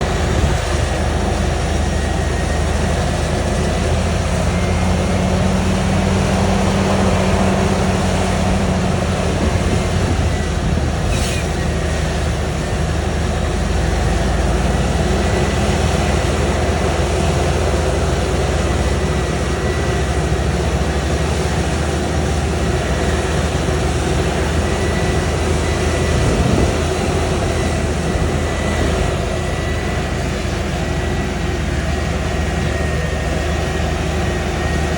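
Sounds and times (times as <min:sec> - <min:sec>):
thin high whine: 0:00.0 - 0:12.9
diesel machinery engine rumble: 0:00.0 - 0:34.9.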